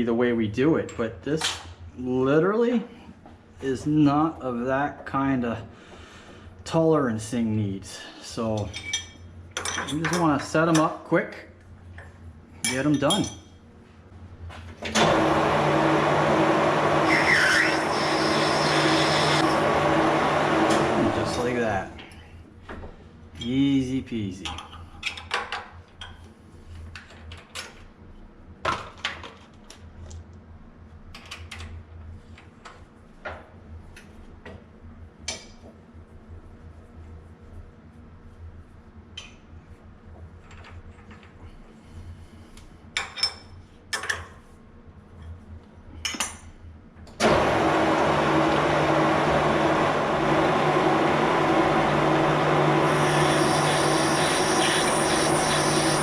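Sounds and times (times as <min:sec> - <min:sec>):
lathe humming: 0:15.0 - 0:21.6, 0:47.2 - 0:56.0
high whine: 0:15.0 - 0:22.0, 0:47.6 - 0:56.0.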